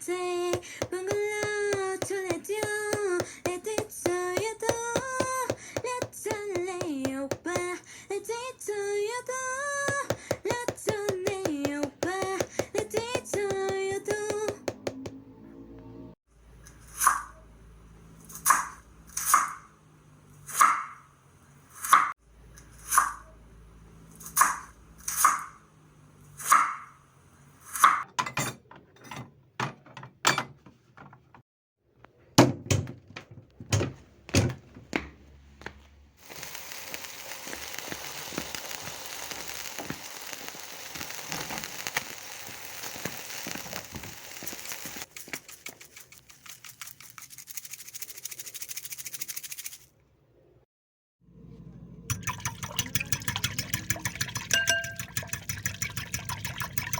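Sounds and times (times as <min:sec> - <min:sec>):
steady crackling hiss: 0:36.2 - 0:45.1
kitchen utensils clinking: 0:52.1 - 0:56.9.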